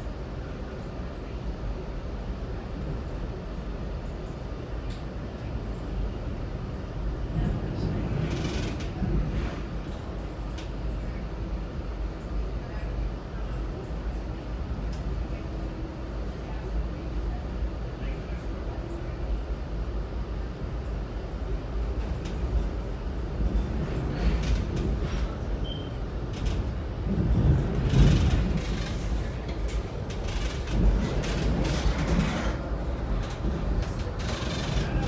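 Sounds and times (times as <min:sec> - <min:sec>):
train rumble from on board: 0:00.0 - 0:35.0
clicks and creaks: 0:27.8 - 0:32.6.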